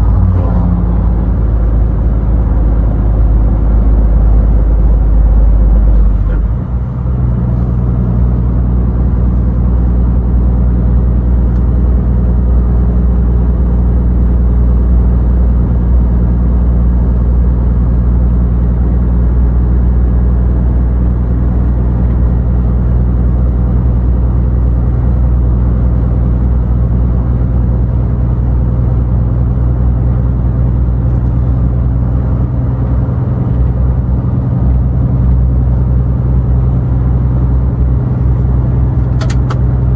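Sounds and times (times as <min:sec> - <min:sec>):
tyre and road noise: 0:00.0 - 0:09.9, 0:27.1 - 0:39.9
truck engine drone: 0:00.0 - 0:39.9.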